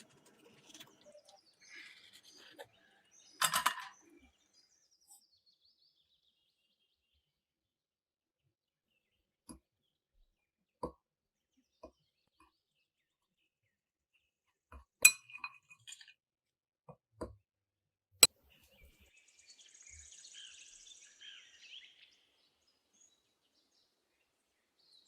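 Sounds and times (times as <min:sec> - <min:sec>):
kitchen clatter: 0:03.3 - 0:04.2.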